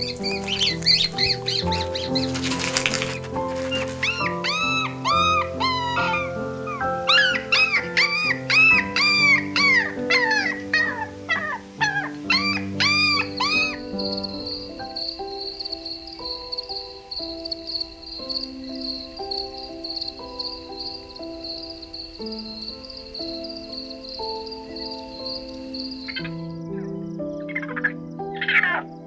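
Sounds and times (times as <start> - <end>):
high trill like crickets: 0.0 - 4.3, 13.3 - 26.6
background music: 0.0 - 29.0.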